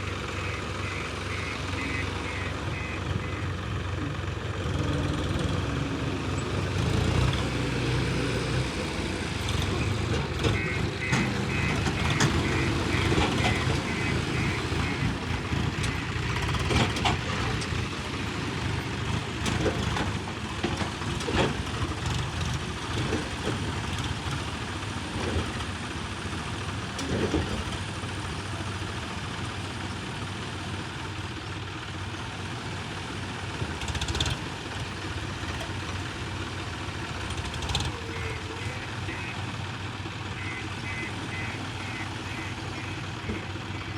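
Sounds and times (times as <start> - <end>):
diesel engine running: 0.0 - 43.9
knocks and clunks: 9.9 - 17.9
reversing alarm beeping: 10.5 - 16.4, 40.4 - 43.9.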